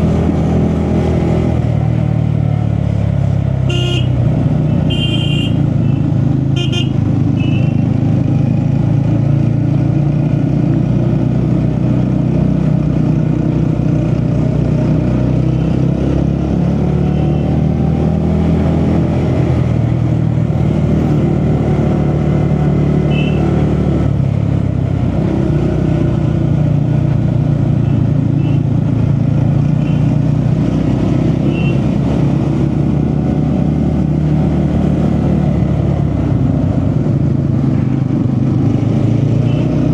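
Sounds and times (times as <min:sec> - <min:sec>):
motorcycle engine running: 0:03.6 - 0:11.0.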